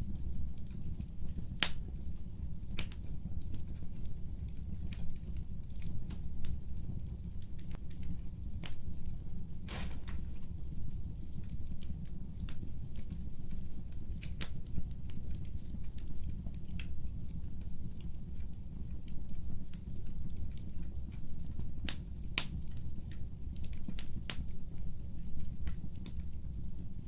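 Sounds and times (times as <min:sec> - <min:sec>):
fireplace fire crackling: 0:00.0 - 0:27.0.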